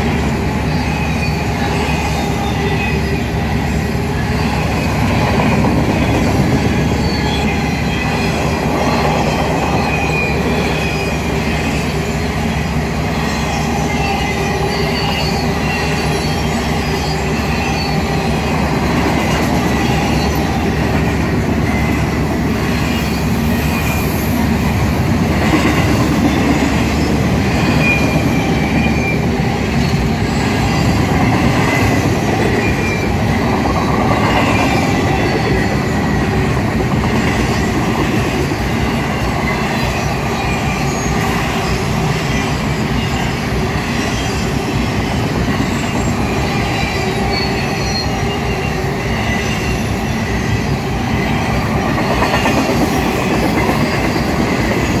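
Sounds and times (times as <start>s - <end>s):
freight train wheels rumbling: 0.0s - 55.0s
high wheel squeals: 0.0s - 55.0s.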